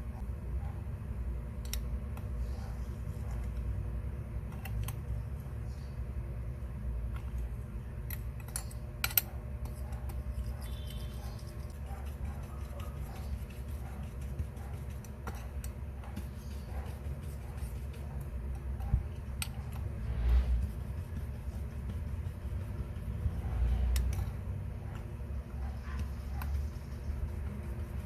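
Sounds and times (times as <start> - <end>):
steady low hum: 0.0 - 28.0
small metal tools clicking: 8.0 - 9.3.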